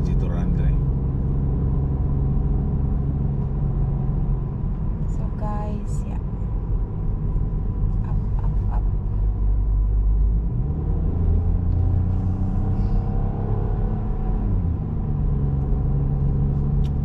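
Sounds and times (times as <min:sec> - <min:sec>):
car engine drone climbing: 0:00.0 - 0:17.0.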